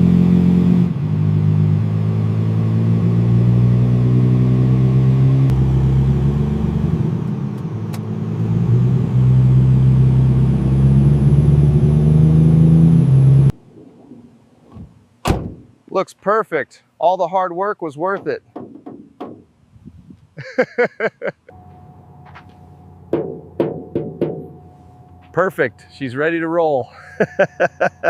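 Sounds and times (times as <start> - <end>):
diesel truck engine running: 1.0 - 13.6, 21.5 - 27.7.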